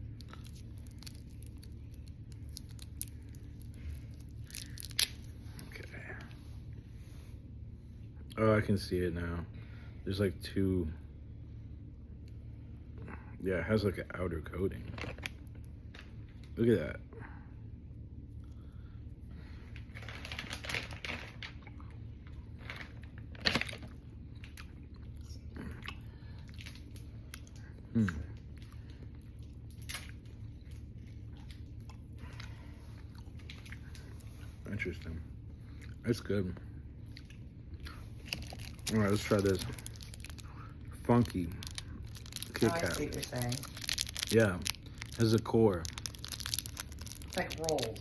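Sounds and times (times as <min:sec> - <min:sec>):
candy wrapper crinkling: 0:00.1 - 0:05.8, 0:19.8 - 0:21.6, 0:37.9 - 0:48.0
candy package snapping: 0:00.2 - 0:05.3, 0:38.2 - 0:40.5, 0:41.1 - 0:48.0.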